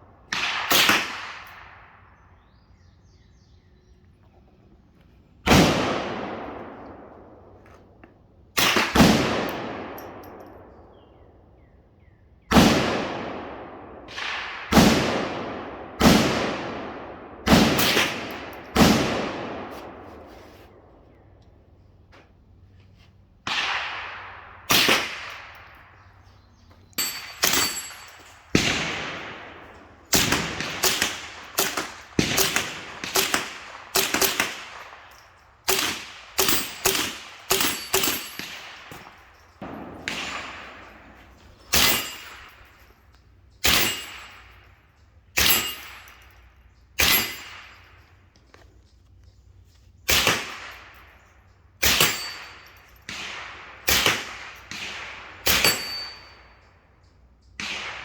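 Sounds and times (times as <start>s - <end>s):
suppressed rifle shots: 0.3s - 1.8s, 5.5s - 7.2s, 8.6s - 10.8s, 23.4s - 26.1s, 27.0s - 42.7s, 57.6s - 58.0s.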